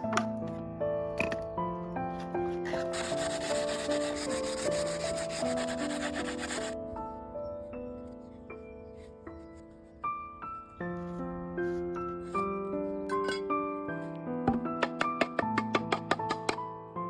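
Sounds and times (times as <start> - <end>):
soft piano music: 0.0 - 17.0
bamboo being sanded: 2.7 - 6.8.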